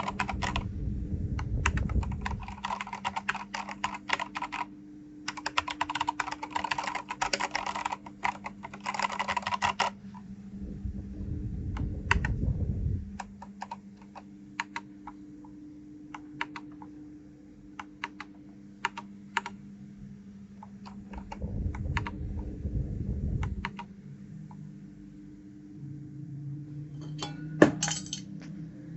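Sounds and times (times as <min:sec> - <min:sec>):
keyboard keys clicking: 0:00.0 - 0:00.6, 0:01.7 - 0:04.7, 0:05.3 - 0:10.0, 0:13.2 - 0:15.2, 0:16.2 - 0:16.9, 0:17.8 - 0:19.5, 0:20.6 - 0:21.4
faint steady hum: 0:00.0 - 0:28.9
low rumble: 0:00.1 - 0:02.6, 0:10.2 - 0:13.4, 0:20.9 - 0:28.9.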